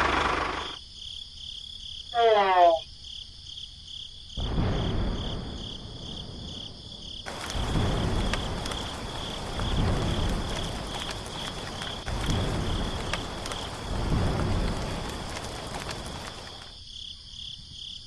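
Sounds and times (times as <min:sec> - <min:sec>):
crickets chirping: 0:00.0 - 0:18.0
steady hiss with sharp ticks: 0:07.0 - 0:17.2.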